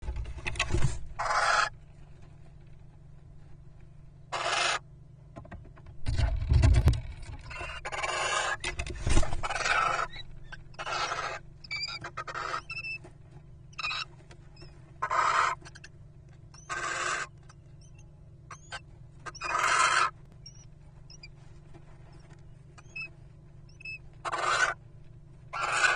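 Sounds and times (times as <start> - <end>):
owls rasping calls: 1.2 - 1.8, 4.3 - 4.8, 7.5 - 8.6, 9.4 - 13.0, 13.7 - 15.9, 16.6 - 21.3, 22.8 - 23.1, 23.7 - 24.8, 25.5 - 25.9.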